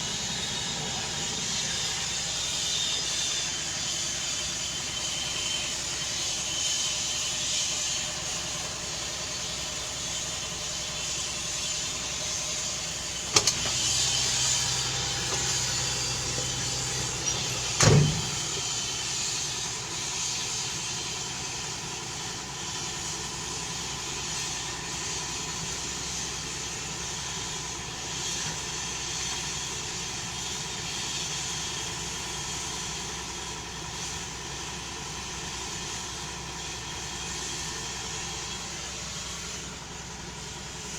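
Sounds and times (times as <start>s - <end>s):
helicopter engine whine: 0.0s - 30.9s
sharp click: 13.3s - 13.8s.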